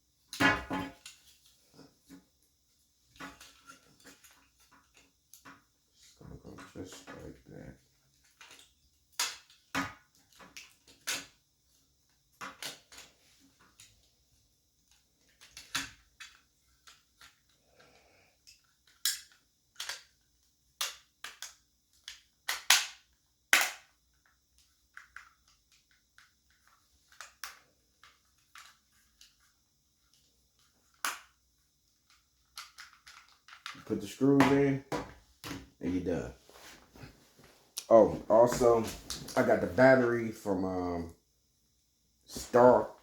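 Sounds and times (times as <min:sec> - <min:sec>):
plastic clicks and snaps: 0:18.5 - 0:20.1, 0:20.8 - 0:23.9.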